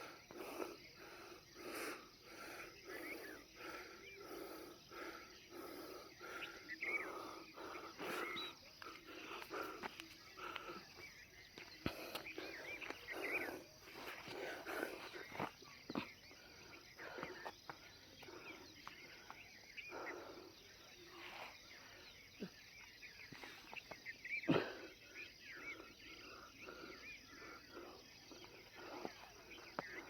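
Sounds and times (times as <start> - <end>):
person breathing: 0.0 - 10.9
bird chirps: 2.6 - 30.0.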